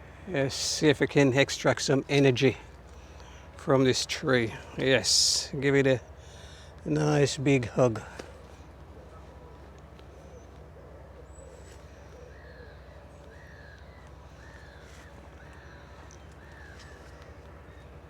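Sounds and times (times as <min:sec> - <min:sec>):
bird calling: 0:06.0 - 0:18.0
faint bird chirps: 0:09.0 - 0:18.0.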